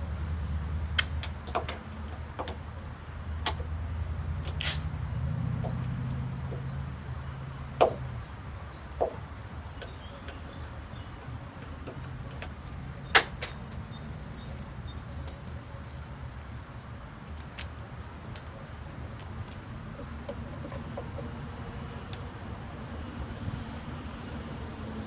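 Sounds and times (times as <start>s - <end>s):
clicks and knocks of car parts: 0.9s - 3.7s, 7.7s - 8.1s, 8.9s - 10.5s, 11.2s - 13.9s.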